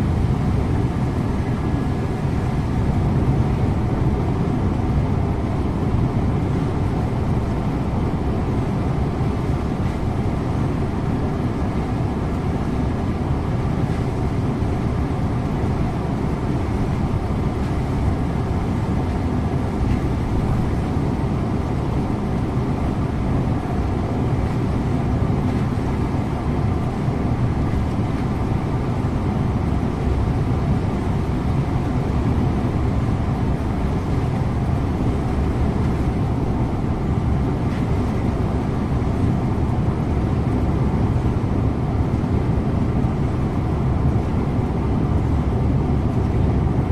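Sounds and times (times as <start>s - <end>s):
bus engine hum: 0.0s - 46.9s
road and tyre noise: 0.0s - 46.9s.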